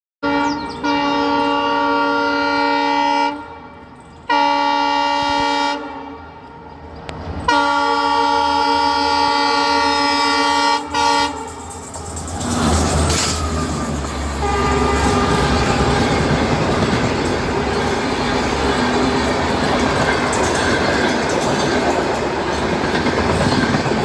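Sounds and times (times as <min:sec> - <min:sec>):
locomotive horn blasts: 0:00.2 - 0:11.6, 0:14.4 - 0:19.3
train rumble: 0:00.2 - 0:24.0.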